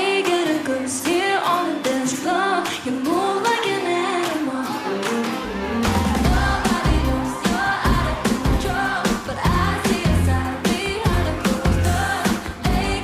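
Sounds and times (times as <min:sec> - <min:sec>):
female group vocals singing: 0:00.0 - 0:05.0, 0:06.2 - 0:13.0
heavy bass and drums: 0:05.8 - 0:13.0.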